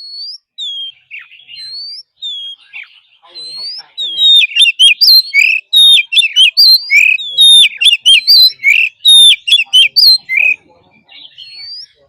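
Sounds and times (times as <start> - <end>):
bird singing whistled phrases: 0.0 - 12.0.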